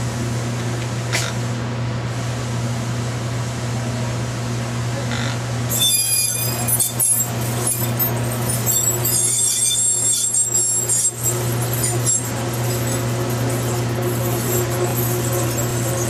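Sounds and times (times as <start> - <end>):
machine hum: 5.5 - 16.0
shrill welding screech: 5.7 - 16.0.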